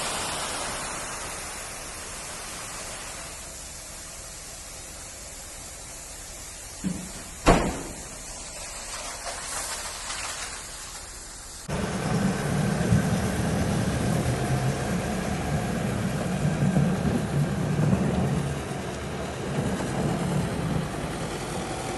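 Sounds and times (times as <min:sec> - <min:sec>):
steady hiss: 0:00.0 - 0:21.9
sharp knock: 0:06.8 - 0:08.1
low machine rumble: 0:10.8 - 0:21.9.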